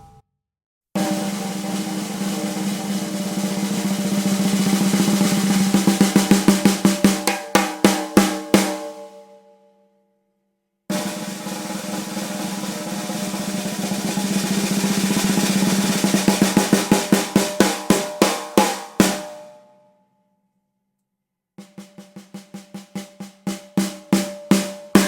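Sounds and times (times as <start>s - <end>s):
snare drum roll and strokes: 1.0s - 8.8s, 10.9s - 19.3s.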